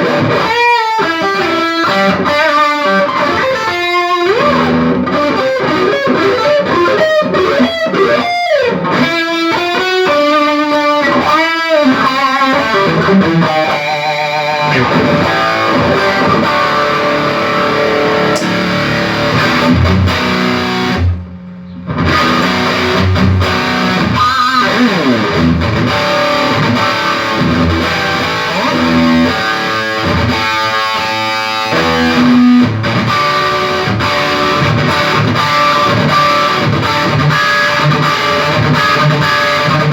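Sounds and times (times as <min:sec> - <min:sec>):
electric guitar playing: 0:00.0 - 0:39.9.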